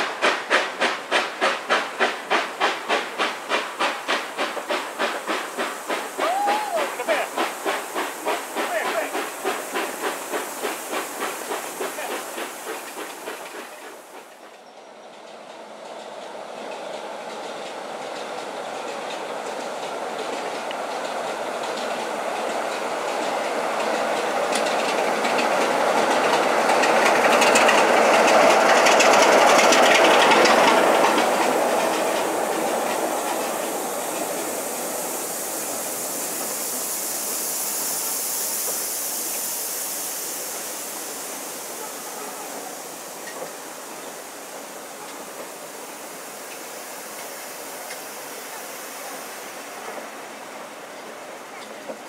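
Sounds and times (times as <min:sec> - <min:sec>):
high hiss: 0:00.0 - 0:14.4, 0:17.8 - 0:52.0
train passing: 0:00.0 - 0:52.0
wheels clicking over rail joints: 0:00.1 - 0:37.2.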